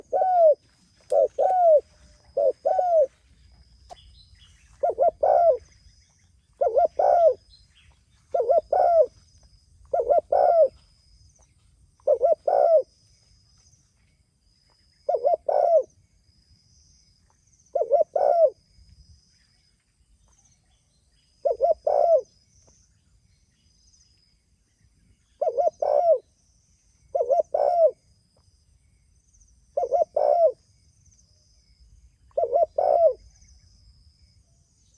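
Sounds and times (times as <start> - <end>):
dove cooing: 0.0 - 3.2, 4.7 - 5.8, 6.6 - 7.5, 8.3 - 9.2, 9.9 - 10.8, 12.0 - 12.9, 15.1 - 15.9, 17.7 - 18.6, 21.4 - 22.3, 25.4 - 26.2, 27.1 - 28.0, 29.8 - 30.6, 32.3 - 33.3.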